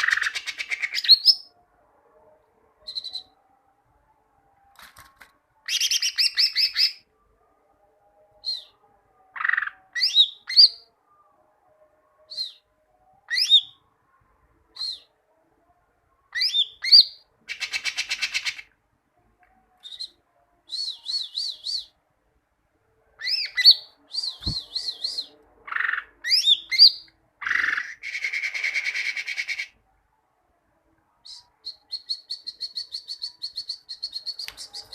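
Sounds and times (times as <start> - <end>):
bird singing chirps and whistles: 0.0 - 1.5, 2.9 - 3.4, 5.6 - 7.0, 8.4 - 8.8, 9.4 - 10.9, 12.3 - 12.7, 13.3 - 13.8, 14.7 - 15.1, 16.3 - 18.6, 19.8 - 22.0, 23.2 - 29.7, 31.2 - 34.9.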